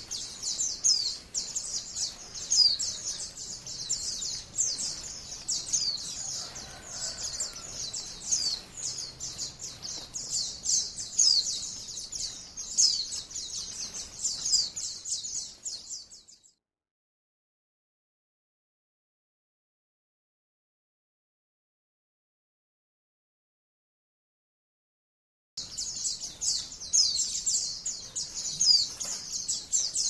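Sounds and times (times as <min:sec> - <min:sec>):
bird warbling song: 0:00.0 - 0:16.5, 0:25.6 - 0:30.0.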